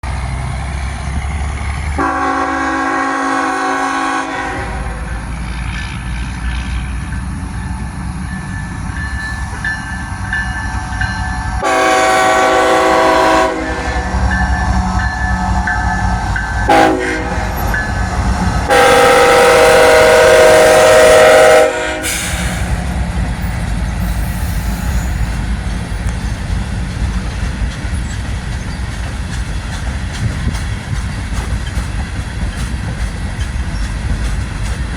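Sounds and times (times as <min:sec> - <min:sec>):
locomotive and train rumble: 0:00.0 - 0:34.9
locomotive air horn: 0:02.0 - 0:05.1, 0:10.6 - 0:22.9.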